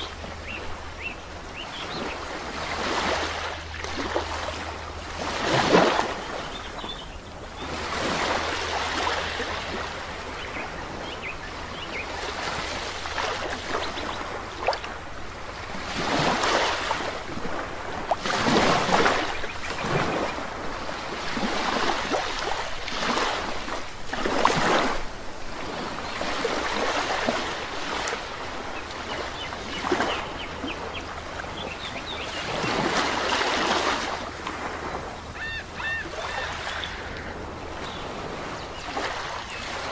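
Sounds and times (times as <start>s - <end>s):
sea waves breaking on beach: 0.0s - 39.9s
faint short bird calls: 35.3s - 38.1s.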